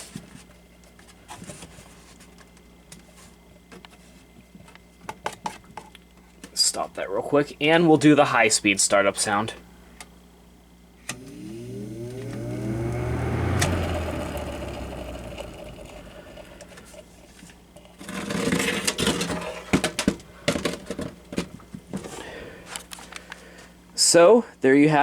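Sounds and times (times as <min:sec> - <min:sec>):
fan motor humming and whining: 0:11.0 - 0:17.2.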